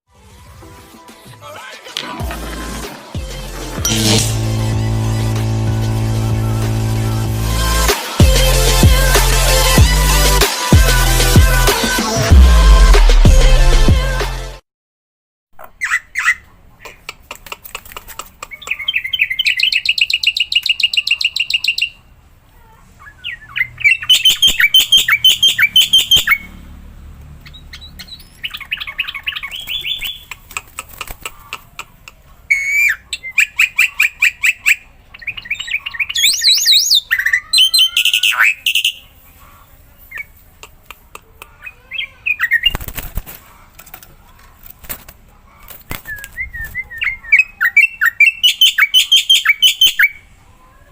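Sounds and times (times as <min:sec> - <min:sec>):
starling chattering song: 0:01.5 - 0:11.9, 0:23.0 - 0:26.6, 0:27.4 - 0:43.0
rising whistled bird calls: 0:23.0 - 0:26.5, 0:35.2 - 0:39.0, 0:46.1 - 0:50.3.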